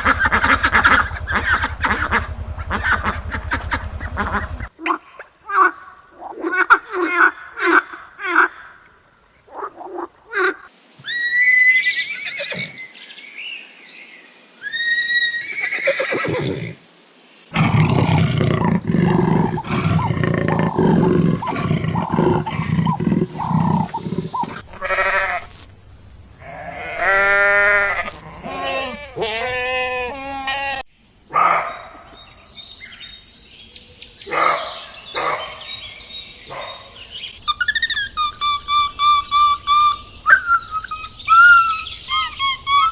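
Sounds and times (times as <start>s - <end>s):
long low animal vocalisation: 0.0s - 4.7s, 17.5s - 25.4s
bird chirps: 0.0s - 5.2s, 31.0s - 42.9s
high repeated animal calls: 0.0s - 8.9s, 17.5s - 31.9s, 36.5s - 42.9s
animal calls rising and falling: 17.5s - 25.7s, 26.4s - 30.8s.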